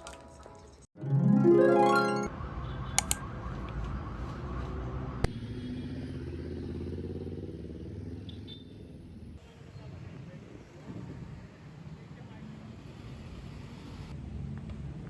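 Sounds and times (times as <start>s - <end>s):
sharp clicks: 3.0s - 3.2s.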